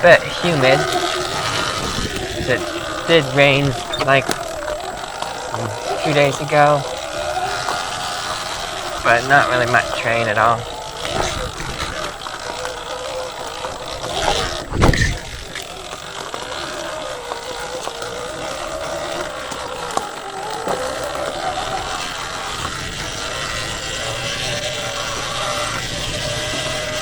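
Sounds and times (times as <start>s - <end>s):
motor whine wavering in pitch: 0.0s - 27.0s.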